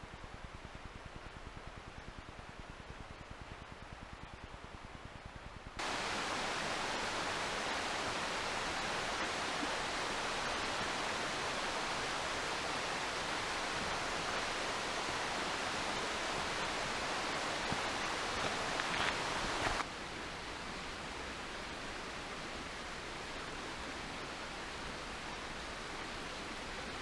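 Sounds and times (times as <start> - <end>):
waterfall rushing: 5.8 - 19.9.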